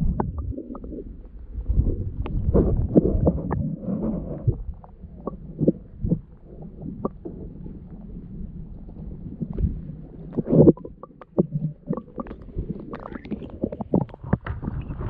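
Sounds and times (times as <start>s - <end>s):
low rumble on microphone: 0.0s - 15.0s
water splashing: 9.0s - 15.0s.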